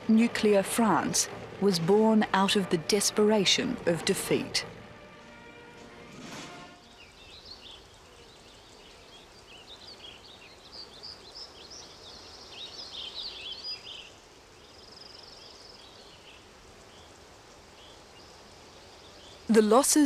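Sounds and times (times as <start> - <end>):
faint steady hiss: 3.6 - 20.0
small birds chirping: 6.8 - 20.0.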